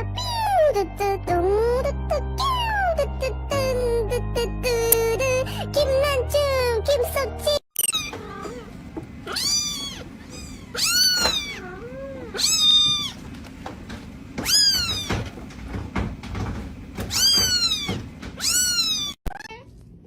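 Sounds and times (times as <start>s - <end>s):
cat meowing: 7.9s - 13.2s, 14.4s - 15.2s, 17.1s - 19.7s.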